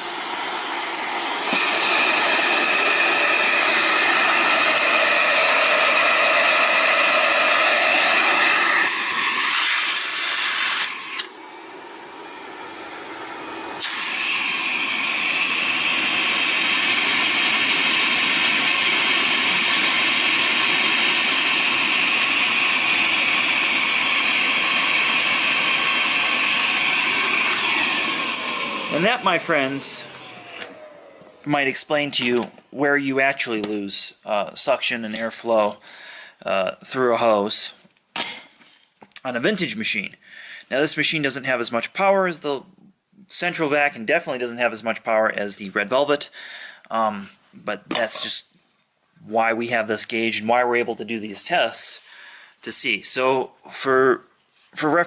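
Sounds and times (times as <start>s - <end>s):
vacuum cleaner motor whine: 0.0s - 31.9s.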